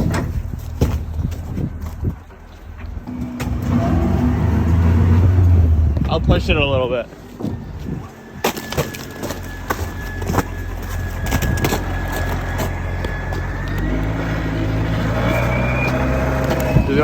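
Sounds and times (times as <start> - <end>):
vehicle engine running low: 0.0 - 17.0
thin steady whine: 6.0 - 17.0
ice and snow crunching underfoot: 6.8 - 17.0.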